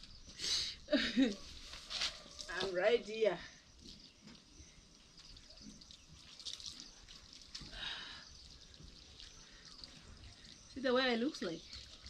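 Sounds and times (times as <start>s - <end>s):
water splashing and dripping: 3.7s - 12.0s.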